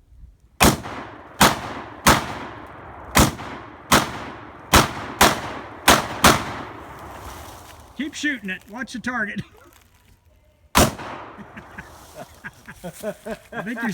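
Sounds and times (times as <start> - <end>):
rifle gunshots with echo: 0.6 - 7.4, 10.8 - 11.8.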